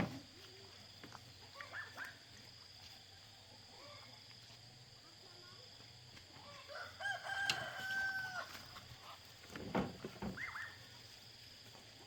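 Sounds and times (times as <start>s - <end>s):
rooster crowing: 6.6s - 8.8s.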